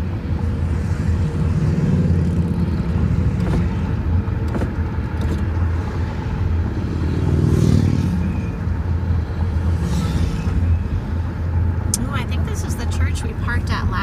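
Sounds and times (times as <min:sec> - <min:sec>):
slow street traffic rumble: 0:00.0 - 0:14.0
louder passing engine: 0:05.8 - 0:08.7.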